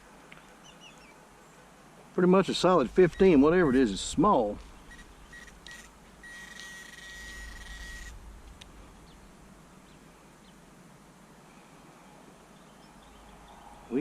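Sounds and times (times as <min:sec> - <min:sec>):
metal detector beeping: 0:02.9 - 0:03.5, 0:04.9 - 0:08.2.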